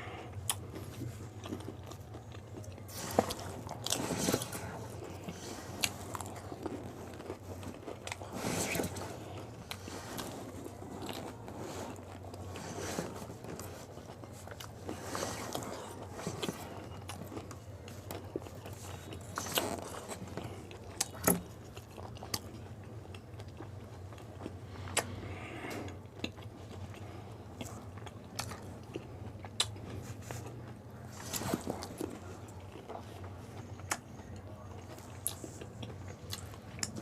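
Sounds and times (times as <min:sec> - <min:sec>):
crunchy food chewing: 0:00.0 - 0:37.0
steady low hum: 0:00.0 - 0:37.0.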